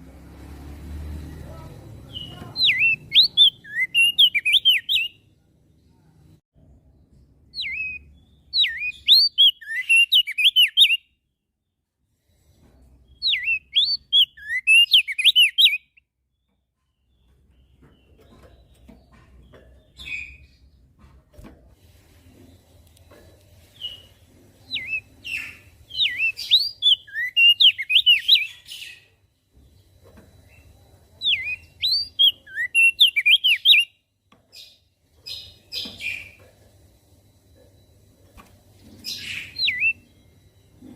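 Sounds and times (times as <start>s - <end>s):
bird chirps: 1.3s - 6.2s, 7.0s - 11.8s, 12.7s - 21.0s, 22.4s - 40.9s
bird singing swooping whistles: 7.6s - 11.0s, 24.7s - 29.0s, 31.2s - 33.9s, 39.1s - 40.0s.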